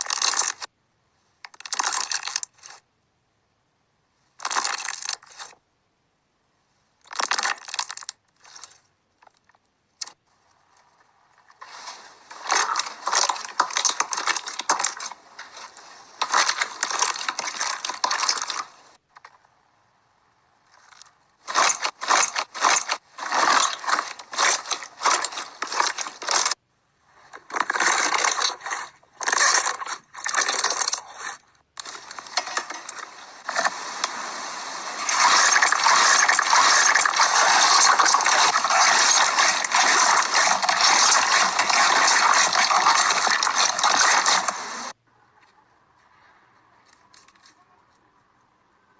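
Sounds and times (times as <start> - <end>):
slime crackling and popping: 35.0 - 44.9.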